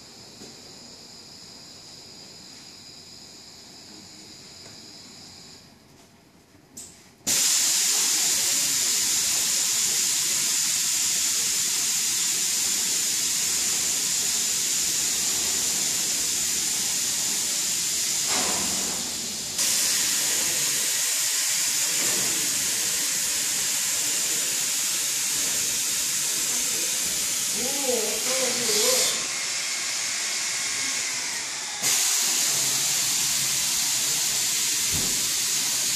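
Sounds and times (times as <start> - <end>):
cleaning machine nozzle jets hissing: 7.3 - 35.9.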